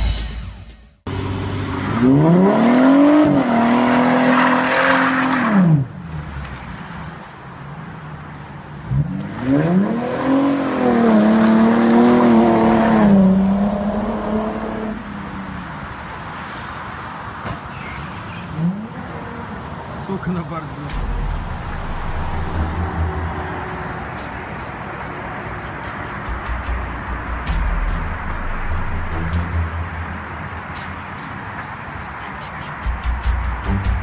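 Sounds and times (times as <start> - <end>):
car engine accelerating: 1.1 - 7.2, 20.9 - 31.2.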